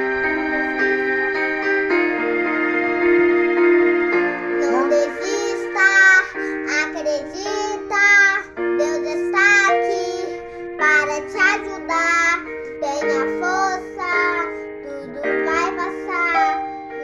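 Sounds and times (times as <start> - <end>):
keyboard chords: 0.0 - 17.0
child singing: 4.6 - 17.0.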